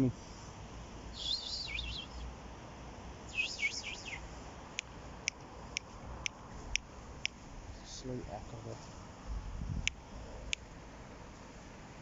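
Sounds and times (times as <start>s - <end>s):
small bird warbling: 1.1s - 2.3s, 3.3s - 4.3s
sharp tick: 9.8s - 10.7s.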